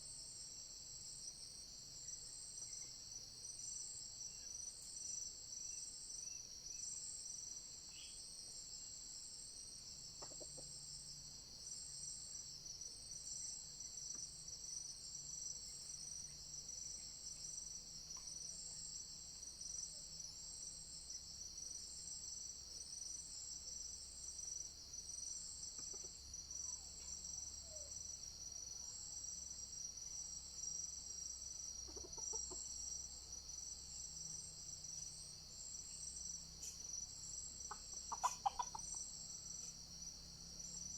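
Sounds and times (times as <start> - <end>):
pulsing insect chorus: 0.0 - 40.9
junglefowl clucking: 10.2 - 10.6, 31.9 - 32.6, 37.7 - 38.9.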